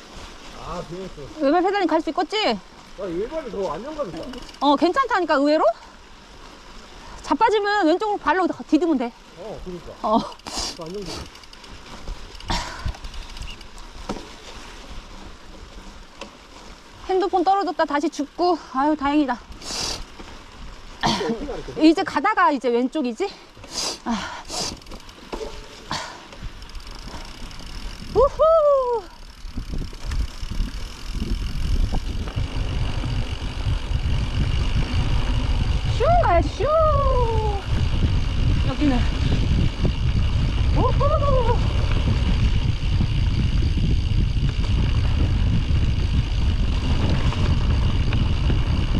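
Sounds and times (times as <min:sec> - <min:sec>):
bike rattling: 0:00.0 - 0:48.9
bike tyres rumbling: 0:00.0 - 0:48.9
bike knocks and rattles: 0:10.8 - 0:14.4, 0:24.7 - 0:28.1, 0:41.6 - 0:48.9
tyre and wind noise: 0:24.6 - 0:48.9
low rumble: 0:26.9 - 0:48.9.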